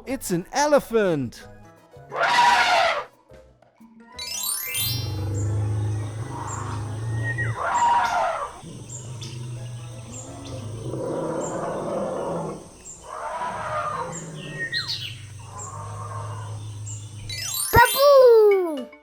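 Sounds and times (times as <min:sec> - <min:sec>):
elephant calls: 0:02.1 - 0:03.1, 0:05.0 - 0:18.8
bird chirping: 0:05.0 - 0:18.8.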